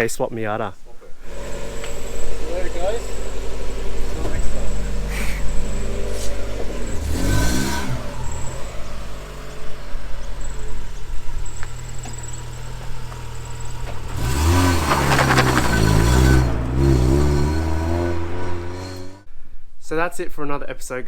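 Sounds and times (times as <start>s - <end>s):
car engine running and revving: 1.2s - 19.3s.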